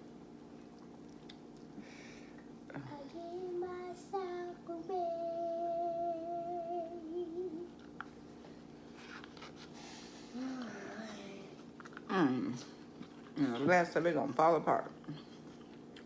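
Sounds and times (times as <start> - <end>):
woman humming: 5.4 - 7.8, 12.1 - 12.7.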